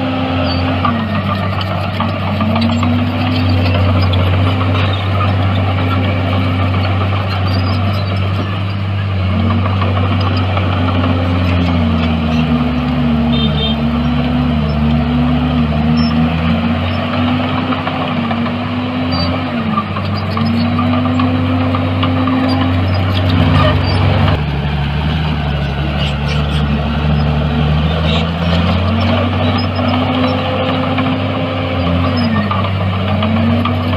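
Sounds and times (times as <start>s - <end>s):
diesel engines humming: 0.0s - 33.9s
second engine tone: 11.3s - 17.0s.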